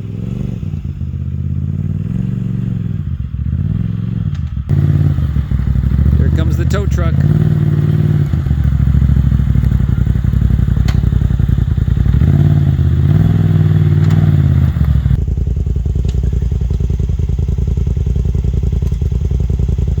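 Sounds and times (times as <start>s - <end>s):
utility vehicle engine running: 0.0s - 20.0s
sharp knocks from vehicle: 10.8s - 11.1s, 14.0s - 14.5s.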